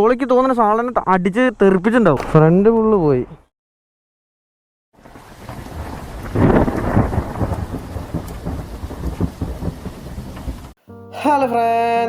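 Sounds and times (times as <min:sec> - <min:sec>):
rain hissing: 0:05.0 - 0:10.8
rolling thunder: 0:05.0 - 0:10.8.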